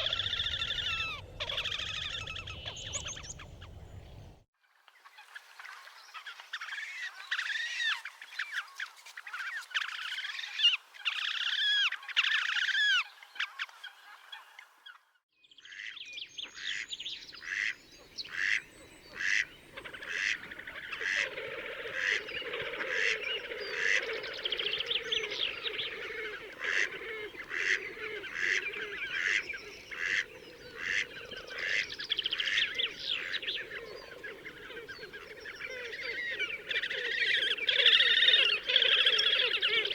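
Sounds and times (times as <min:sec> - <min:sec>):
low bird chorus: 0:00.0 - 0:04.4, 0:15.4 - 0:39.9
sharp bird calls: 0:00.0 - 0:04.4, 0:15.6 - 0:39.9.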